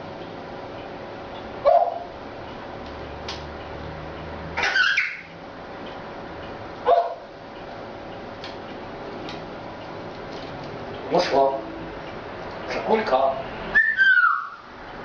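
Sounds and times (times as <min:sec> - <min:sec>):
short bark-like call: 0:01.6 - 0:02.1
high-pitched animal call: 0:04.6 - 0:05.3, 0:13.7 - 0:14.7.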